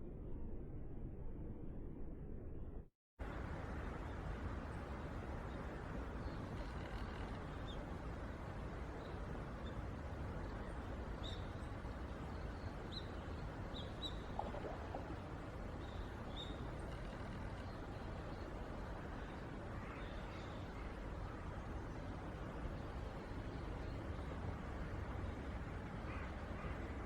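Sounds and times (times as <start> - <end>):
low background rumble: 11.5 - 27.0
low bird call: 14.0 - 15.3.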